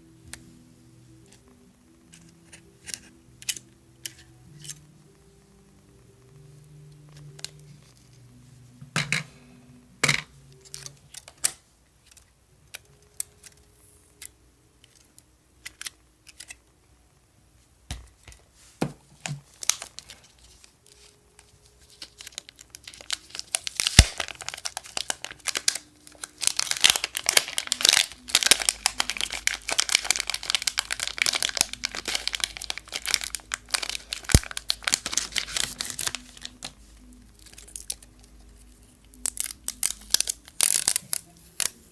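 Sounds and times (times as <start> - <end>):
crinkling and tearing: 19.3 - 41.9.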